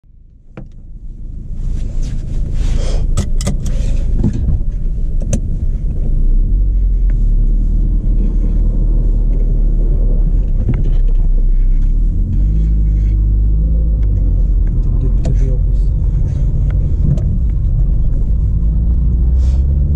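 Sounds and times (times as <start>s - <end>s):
car engine droning: 0.1s - 19.9s.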